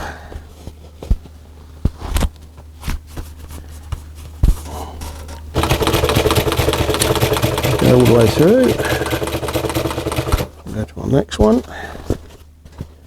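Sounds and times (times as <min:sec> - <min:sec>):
steady low hum: 0:03.0 - 0:12.9
sharp clicks and knocks: 0:05.1 - 0:10.8
sewing machine stitching: 0:05.5 - 0:10.7.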